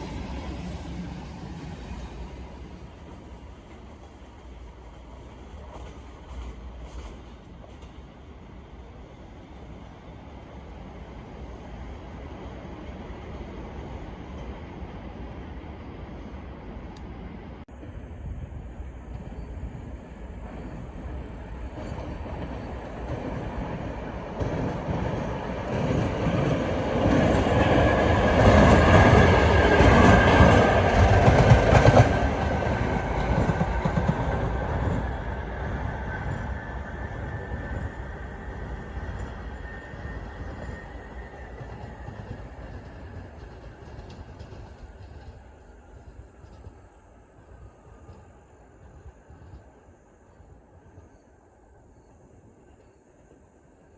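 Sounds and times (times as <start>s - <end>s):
train wheels rumbling on rails: 0.0s - 51.4s.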